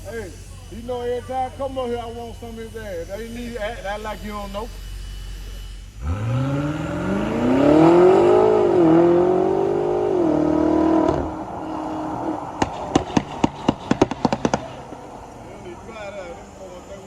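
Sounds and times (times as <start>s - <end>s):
motor revving: 0.8s - 16.5s.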